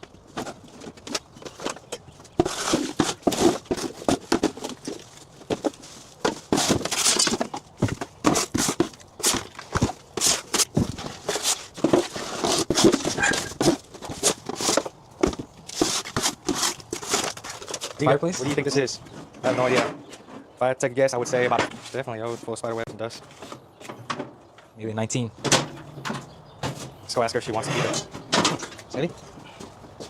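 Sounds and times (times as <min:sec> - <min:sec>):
hard objects knocking and clattering: 0:00.0 - 0:20.0
rustling: 0:00.0 - 0:20.5
shuffling footsteps: 0:26.2 - 0:30.0.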